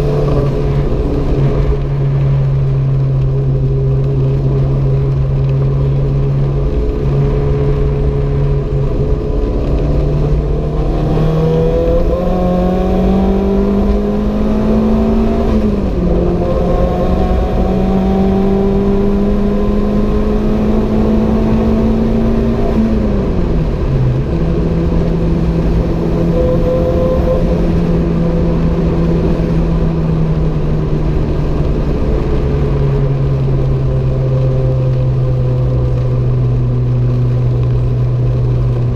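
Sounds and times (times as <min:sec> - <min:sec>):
car engine revving: 0:00.0 - 0:38.9
road and wind noise: 0:00.0 - 0:38.9.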